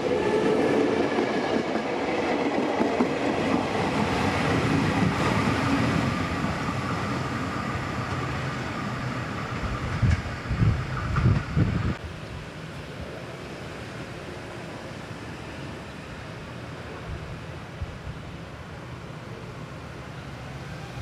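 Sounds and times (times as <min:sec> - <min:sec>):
train wheels clattering over rails: 0:00.0 - 0:07.2, 0:09.3 - 0:11.7.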